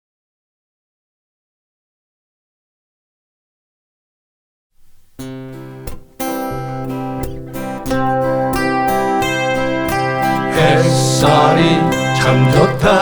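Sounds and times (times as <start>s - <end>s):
acoustic guitars strumming chords: 4.8s - 13.0s.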